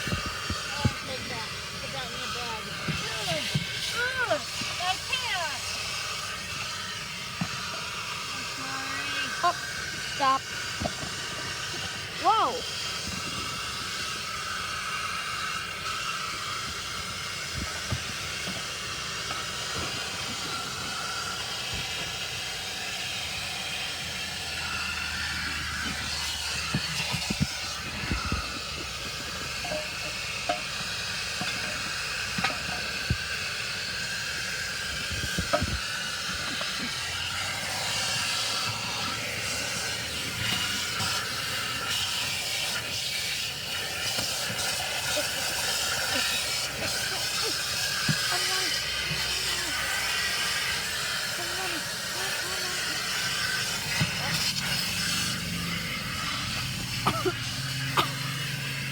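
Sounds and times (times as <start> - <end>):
car wash water spray hiss: 0.0 - 58.9.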